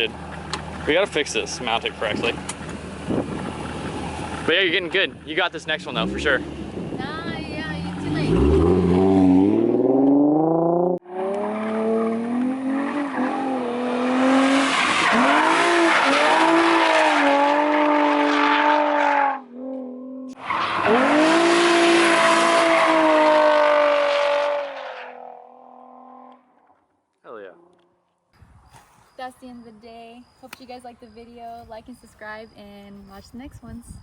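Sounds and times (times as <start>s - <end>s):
car engine revving hard: 7.6s - 25.8s.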